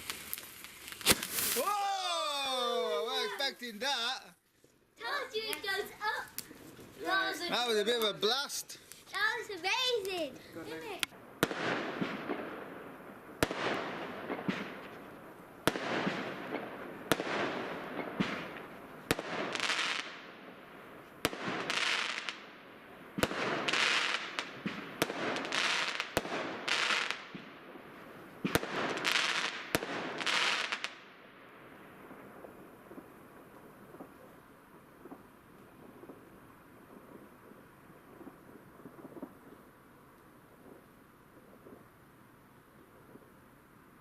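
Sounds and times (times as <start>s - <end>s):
firework bangs: 0.0s - 4.2s, 5.0s - 39.8s
hissing crackling firework bursts: 0.0s - 4.2s, 5.0s - 31.1s.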